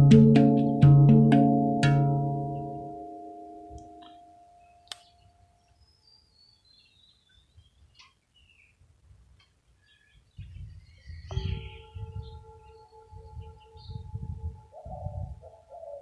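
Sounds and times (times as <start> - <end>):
faint birds chirping: 3.8 - 16.0
singing bowl ringing: 11.3 - 15.6.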